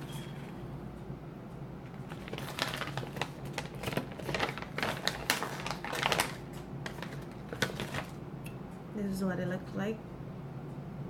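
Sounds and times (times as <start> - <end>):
plastic snack pouch crinkling: 2.0 - 8.2.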